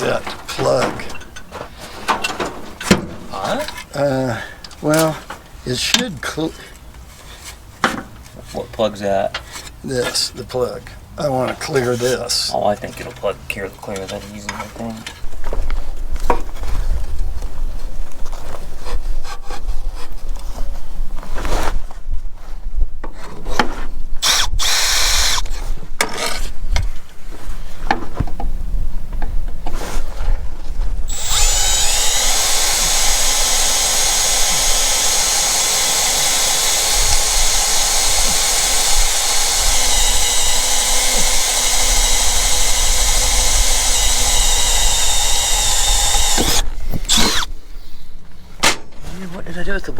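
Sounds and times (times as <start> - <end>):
tools knocking and scraping: 0.0 - 4.0
motor running with high whine: 31.1 - 47.5.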